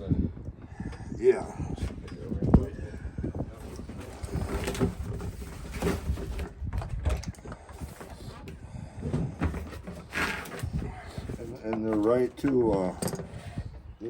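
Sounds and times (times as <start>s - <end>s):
metal fittings and tools handled: 9.5s - 13.6s.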